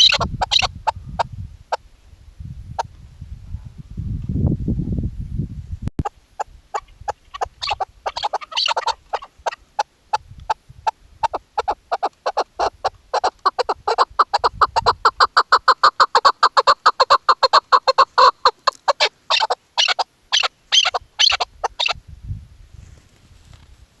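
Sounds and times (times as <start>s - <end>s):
partridge clucking call: 0.0s - 1.0s, 6.0s - 22.0s.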